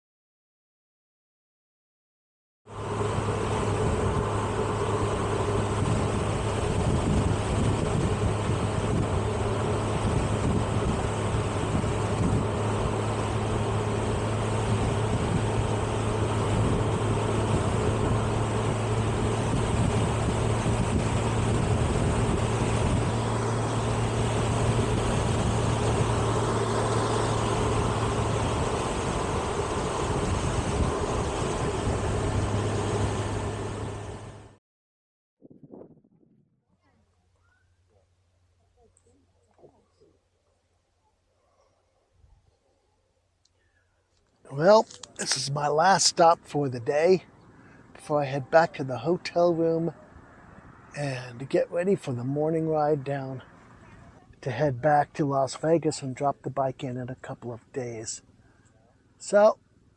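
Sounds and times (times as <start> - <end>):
motorcycle engine running: 2.7 - 34.6
wind rush: 3.0 - 34.0, 35.4 - 36.6.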